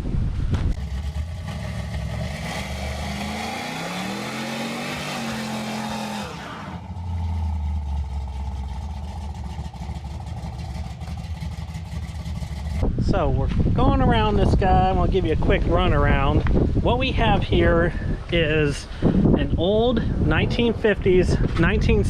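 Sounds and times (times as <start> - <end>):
car engine revving and idling: 0.6 - 13.0.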